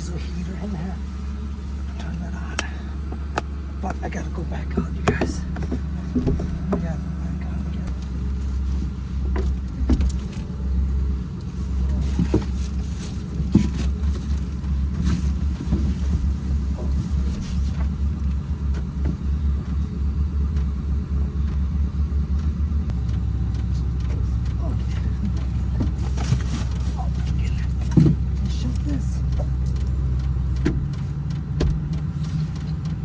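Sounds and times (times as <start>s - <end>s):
truck engine idling: 0.0s - 33.0s
knocks and clicks: 4.8s - 7.1s, 22.4s - 33.0s.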